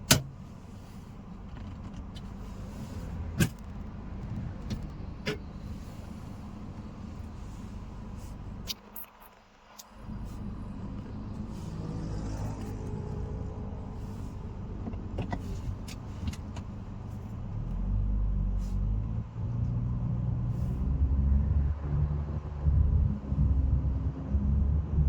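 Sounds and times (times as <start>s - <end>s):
car engine: 0.0s - 9.0s, 9.7s - 25.0s
road and tyre rumble: 0.0s - 25.0s.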